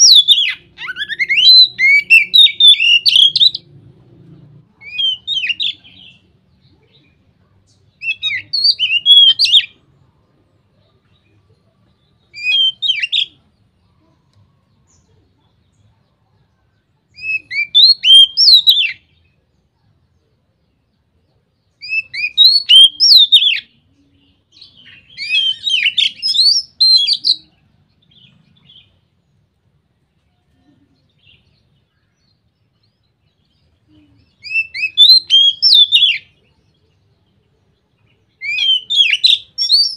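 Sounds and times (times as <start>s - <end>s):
bird singing whistles and trills: 0.0s - 3.8s, 4.8s - 9.9s, 10.7s - 13.6s, 17.1s - 19.4s, 21.6s - 29.0s, 30.6s - 39.9s.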